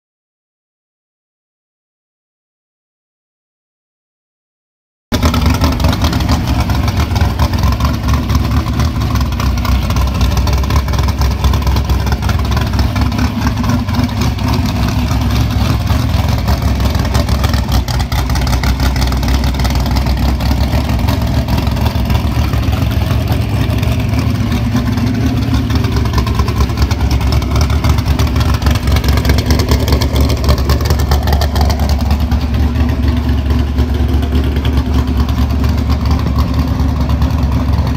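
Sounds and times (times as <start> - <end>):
drag race car engine running: 5.1 - 37.9.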